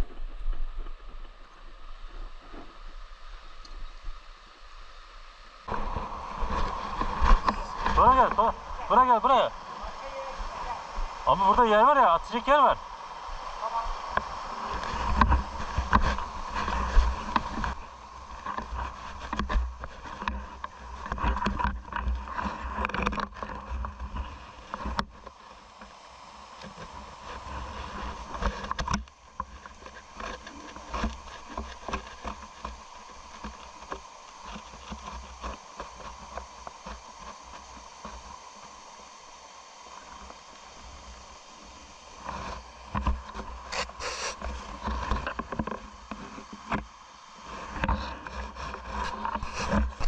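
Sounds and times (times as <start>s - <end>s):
rushing stream water: 0.0s - 50.0s
microphone bumps and rumble: 5.7s - 9.5s, 14.0s - 25.3s, 42.2s - 50.0s.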